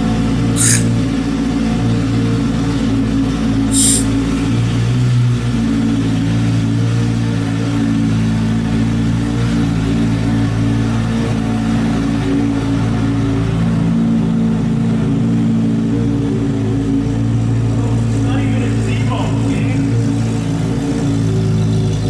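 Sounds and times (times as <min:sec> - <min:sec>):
brief hiss: 0:00.6 - 0:01.0, 0:03.7 - 0:04.2.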